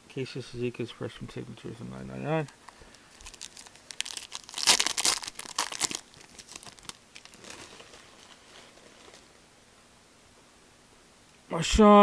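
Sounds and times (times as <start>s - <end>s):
wrapper tearing and crinkling: 3.1s - 9.3s.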